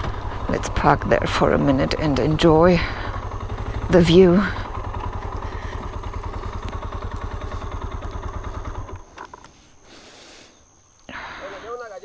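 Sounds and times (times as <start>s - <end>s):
motorcycle engine idling: 0.0s - 12.0s
faint clicks: 5.2s - 9.7s.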